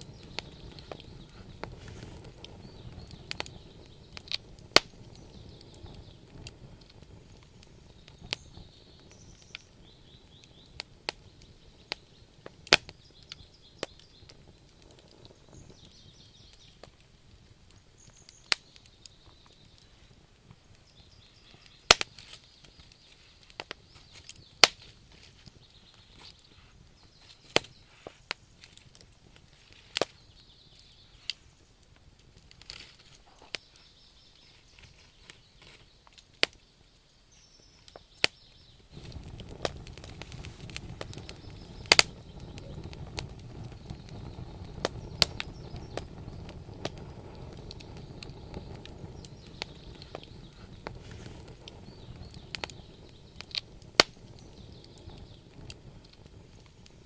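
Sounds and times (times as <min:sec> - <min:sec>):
campfire crackling and popping: 0:00.0 - 0:57.0
steady rushing noise: 0:39.0 - 0:52.2.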